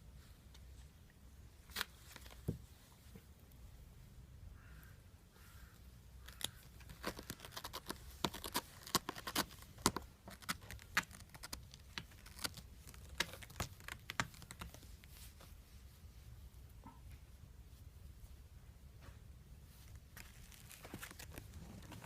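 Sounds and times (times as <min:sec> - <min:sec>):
kitten claws scrabbling and tapping: 0:06.3 - 0:14.8.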